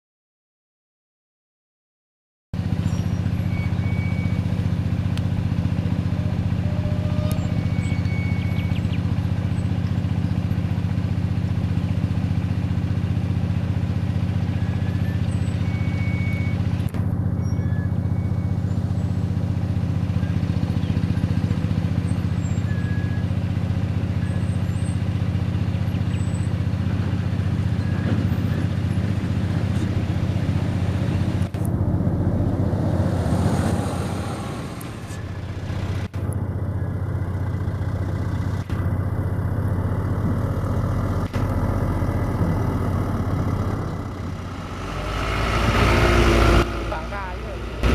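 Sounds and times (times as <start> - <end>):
truck diesel engine running: 2.6 - 47.9.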